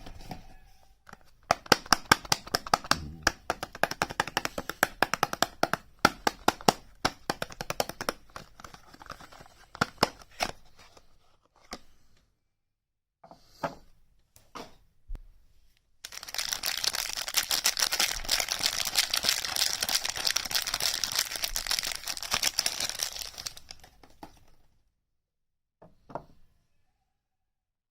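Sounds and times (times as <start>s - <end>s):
hands tapping on packaging: 1.1s - 10.5s.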